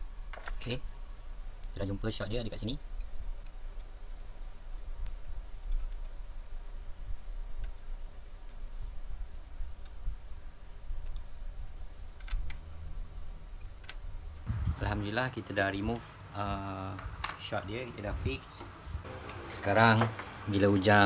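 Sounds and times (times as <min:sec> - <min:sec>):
small repair tools clicking: 0:13.8 - 0:21.0
steady low hum: 0:14.5 - 0:21.0.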